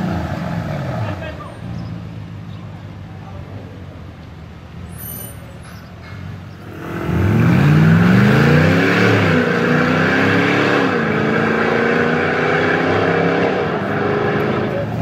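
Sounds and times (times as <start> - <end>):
car engine accelerating: 6.6 - 15.0.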